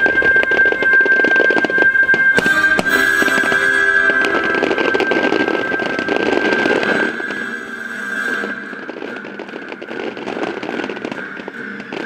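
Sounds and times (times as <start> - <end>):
fireworks popping and crackling: 0.0 - 12.0
music high held tone: 0.0 - 12.0.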